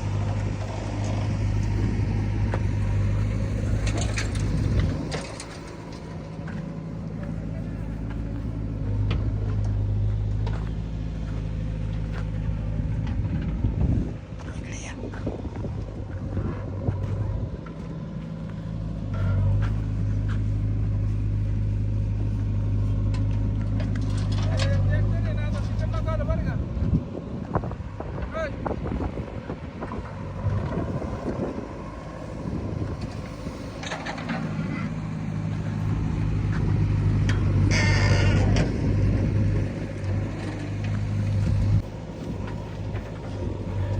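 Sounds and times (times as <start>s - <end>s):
knocks and clatter: 0.0s - 14.0s, 32.8s - 43.9s
heavy diesel engine running: 0.0s - 43.9s.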